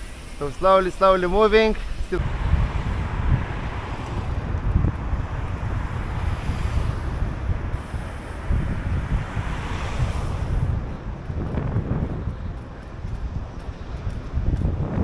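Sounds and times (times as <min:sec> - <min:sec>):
wind buffeting microphone: 0:01.3 - 0:15.0.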